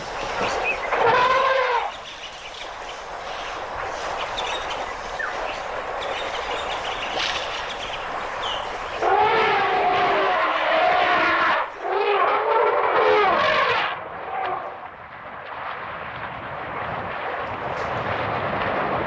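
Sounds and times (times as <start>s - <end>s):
elephant trumpeting: 0.9s - 1.9s, 9.0s - 14.7s.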